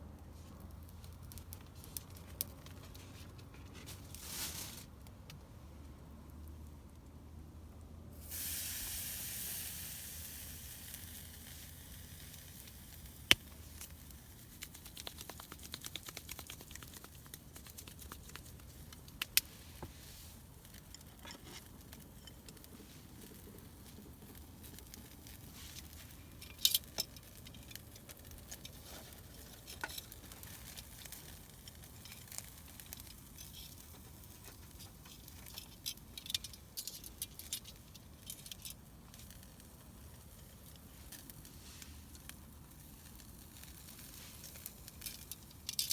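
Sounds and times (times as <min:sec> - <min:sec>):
campfire crackles and pops: 0:00.2 - 0:02.8, 0:08.2 - 0:45.9
campfire sizzling hiss: 0:08.1 - 0:33.5, 0:35.9 - 0:45.9.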